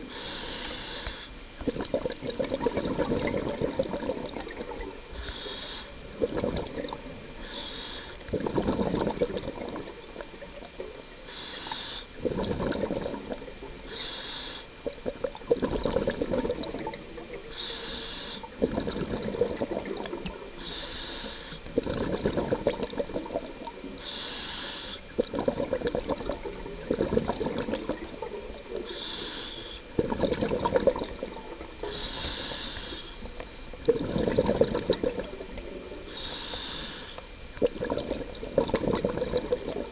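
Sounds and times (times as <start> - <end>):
regulator inhale hiss: 0.0 - 1.6, 5.1 - 6.2, 7.2 - 8.4, 11.2 - 12.2, 13.6 - 14.9, 17.3 - 18.6, 20.5 - 21.8, 23.8 - 25.2, 28.3 - 30.0, 31.5 - 33.5, 35.5 - 37.6
exhaled bubbles gurgling: 0.0 - 39.9.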